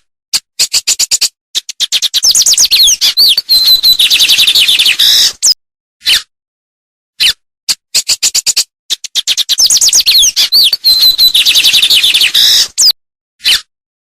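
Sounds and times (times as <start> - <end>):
songbird singing: 1.8 - 5.5, 9.1 - 13.0.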